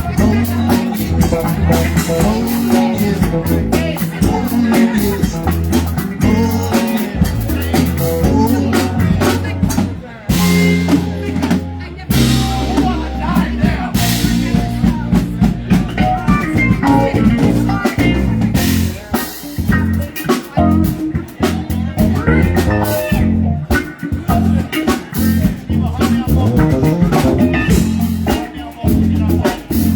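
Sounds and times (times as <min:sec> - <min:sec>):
bass line: 0:00.0 - 0:29.9
drum kit: 0:00.0 - 0:29.9
electric guitar: 0:00.0 - 0:29.9.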